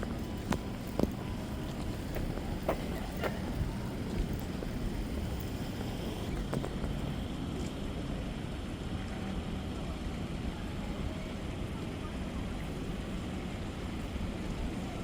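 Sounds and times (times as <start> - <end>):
moving vehicle rumbling: 0.0 - 10.4.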